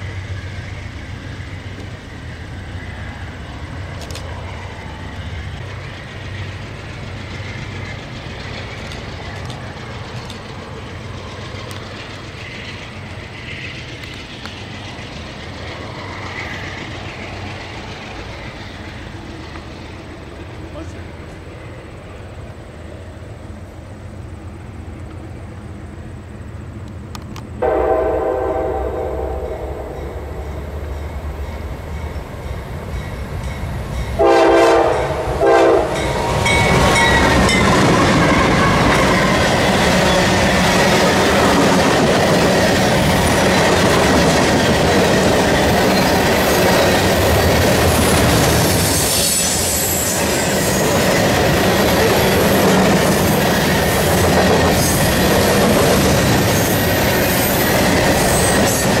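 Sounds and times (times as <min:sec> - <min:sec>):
train rumble: 0:00.0 - 0:59.0
wheels clicking over rail joints: 0:03.6 - 0:21.5, 0:35.9 - 0:59.0
train horn blasts: 0:27.6 - 0:31.1, 0:34.2 - 0:37.6
high wheel squeal: 0:36.0 - 0:41.4, 0:45.4 - 0:52.7, 0:53.3 - 0:59.0.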